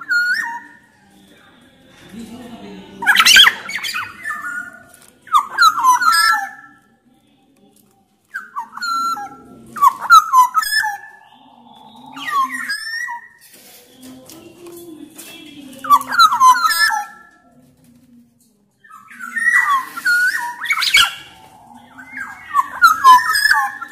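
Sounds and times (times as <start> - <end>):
bird whistling fluty notes: 8.4 - 13.8, 18.9 - 23.9.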